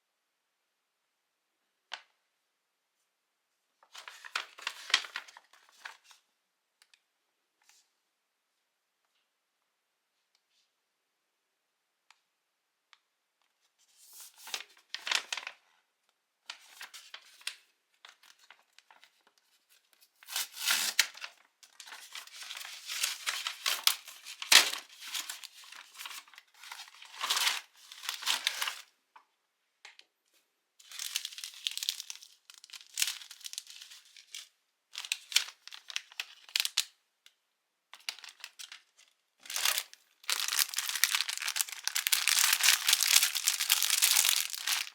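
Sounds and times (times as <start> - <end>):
plastic packaging tearing and crinkling: 20.2 - 28.8, 30.8 - 36.9, 39.4 - 44.9.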